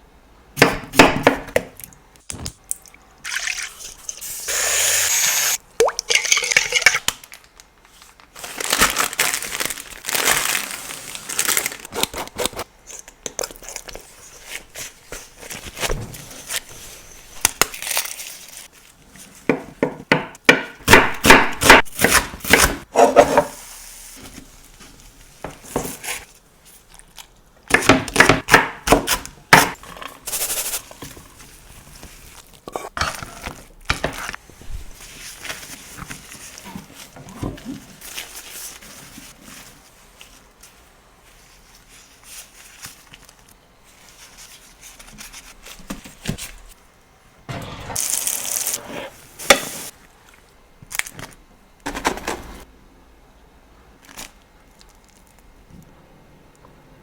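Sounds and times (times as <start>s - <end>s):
packaging rustling and crinkling: 7.0s - 12.7s, 13.7s - 19.4s, 33.2s - 46.8s.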